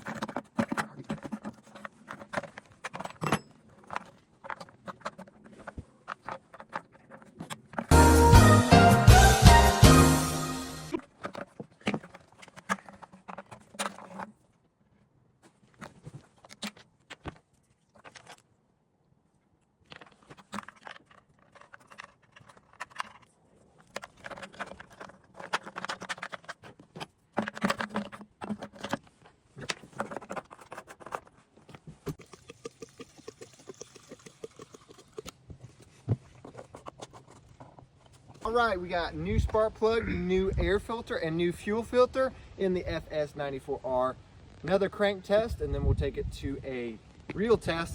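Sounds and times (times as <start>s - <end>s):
background music: 7.9s - 11.0s.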